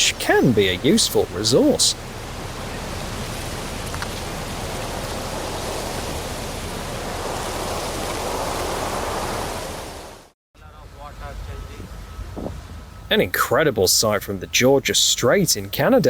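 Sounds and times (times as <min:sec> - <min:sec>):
floodwater rushing: 0:00.0 - 0:10.4.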